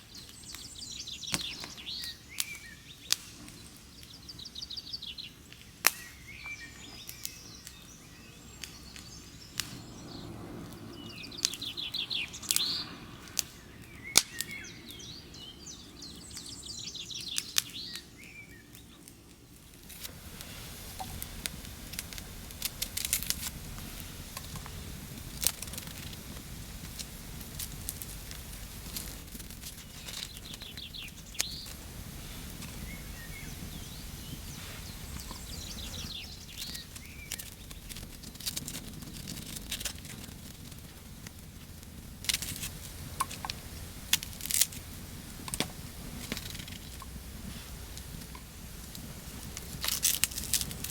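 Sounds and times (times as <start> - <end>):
wood fire clicks and crackles: 0.0 - 50.9
steady low rumble: 8.4 - 14.0, 19.6 - 50.9
faint bird chirps: 28.3 - 38.1.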